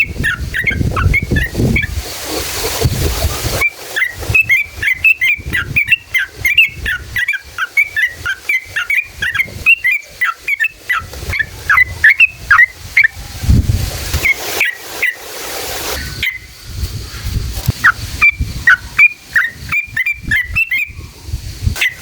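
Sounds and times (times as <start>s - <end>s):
bird singing chirping notes: 0.0s - 1.9s, 3.6s - 13.2s, 17.7s - 21.1s
low rumbling noise: 0.0s - 3.6s, 11.1s - 14.3s, 16.0s - 22.0s.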